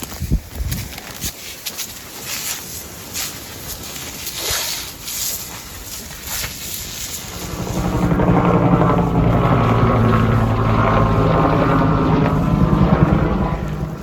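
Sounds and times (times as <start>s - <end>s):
helicopter rotor chop and engine: 5.7s - 14.0s.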